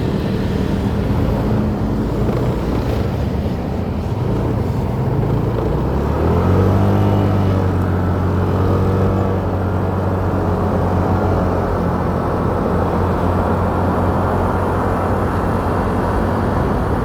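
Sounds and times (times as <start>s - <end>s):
road and wind noise: 0.0s - 17.0s
motorcycle engine revving: 4.2s - 17.0s.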